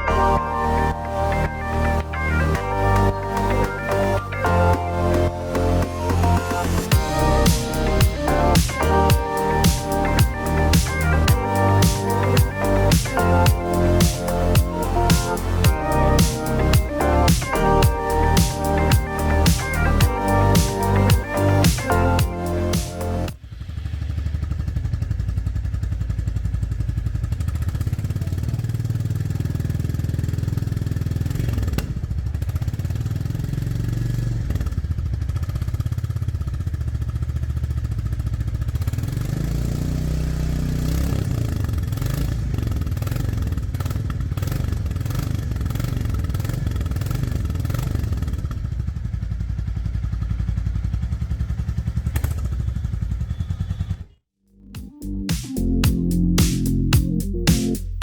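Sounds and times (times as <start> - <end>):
motorcycle engine running: 18.2 - 54.0.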